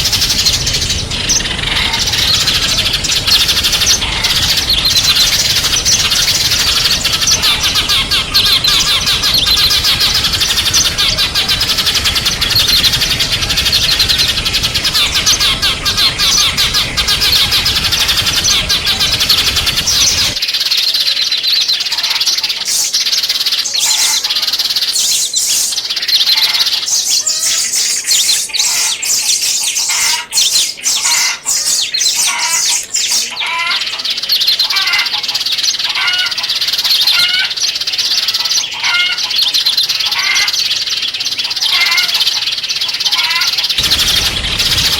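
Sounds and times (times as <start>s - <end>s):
background noise: 0.0s - 44.9s
small songbirds chirping: 0.0s - 44.9s.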